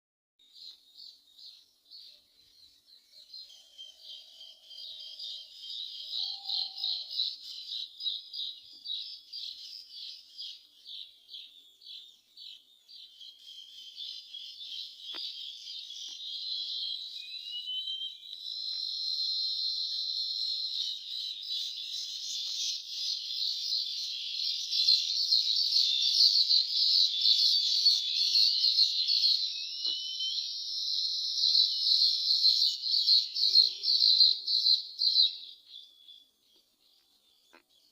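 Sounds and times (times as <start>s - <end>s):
small birds chirping: 0.4s - 37.9s
short rising bird calls: 6.0s - 7.6s.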